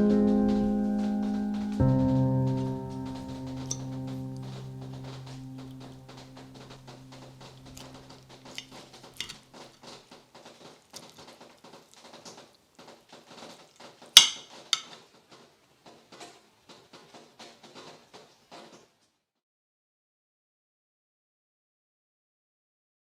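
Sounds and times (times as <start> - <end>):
held music tones: 0.0 - 9.6.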